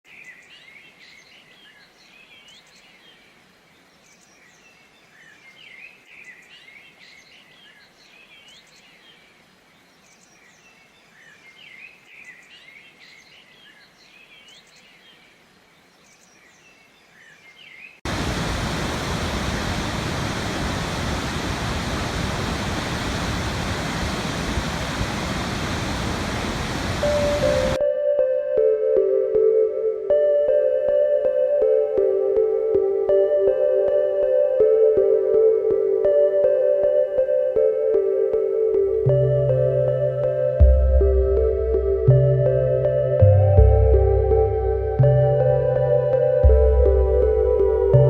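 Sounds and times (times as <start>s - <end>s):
songbirds chirping: 0.1s - 19.4s, 22.8s - 48.0s
waterfall rushing: 18.1s - 27.8s.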